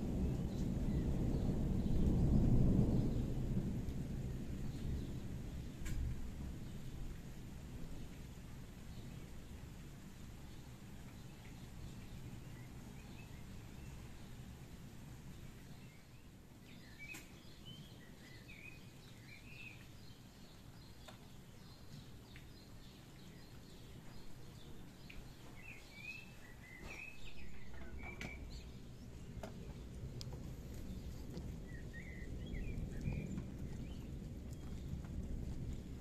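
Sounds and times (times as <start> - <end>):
birds chirping: 15.6 - 35.0
low background rumble: 27.0 - 36.0.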